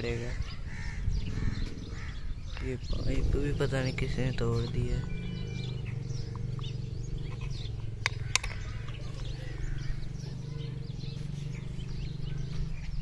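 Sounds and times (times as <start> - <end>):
birds chirping: 0.0 - 13.0
sharp clicks: 6.2 - 9.4.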